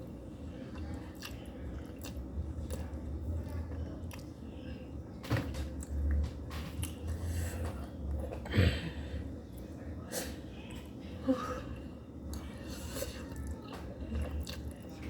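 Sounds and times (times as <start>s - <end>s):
low steady hum: 0.0s - 15.0s
person chewing and slurping noodles: 0.7s - 4.2s, 14.1s - 14.8s.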